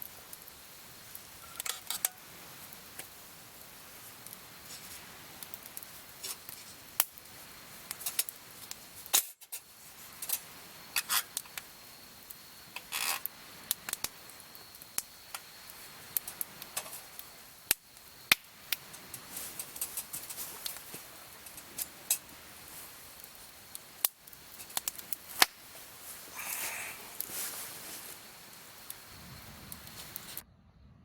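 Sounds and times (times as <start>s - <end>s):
campfire wood crackling: 0.0s - 30.4s.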